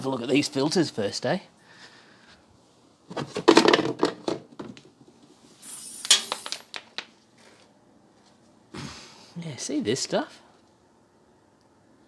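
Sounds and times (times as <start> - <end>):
scraping hiss with click: 5.6 - 6.8
plastic parts clattering: 5.6 - 7.0.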